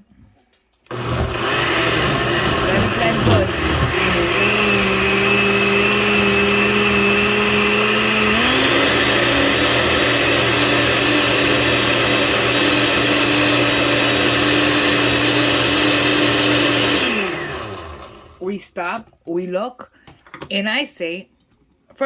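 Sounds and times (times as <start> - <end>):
blender motor running: 0.9 - 18.4.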